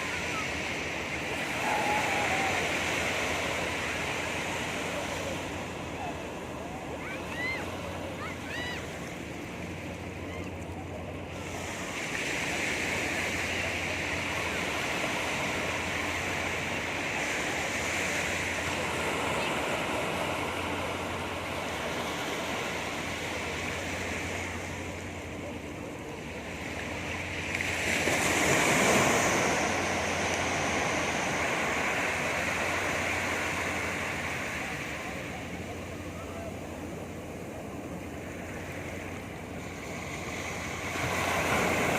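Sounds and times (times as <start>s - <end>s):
sea surf washing onto beach: 0.0s - 41.9s
wave breaking: 0.0s - 41.9s.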